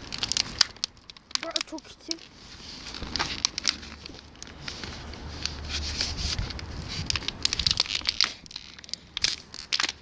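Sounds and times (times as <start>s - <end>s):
plastic bottle crinkling: 0.0s - 10.0s
wind rumbling on microphone: 2.8s - 10.0s.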